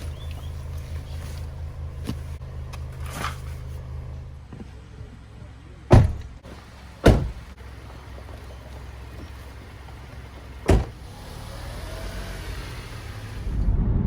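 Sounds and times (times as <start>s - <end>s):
low vehicle rumble: 0.0s - 14.0s
car doors shutting: 5.9s - 13.5s.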